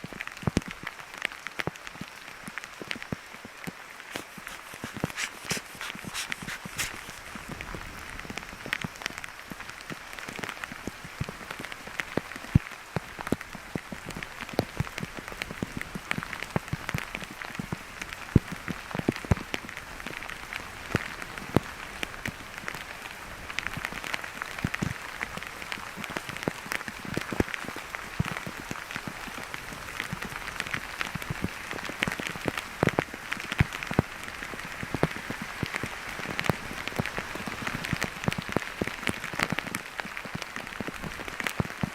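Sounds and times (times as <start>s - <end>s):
steady rain falling: 7.2s - 41.9s.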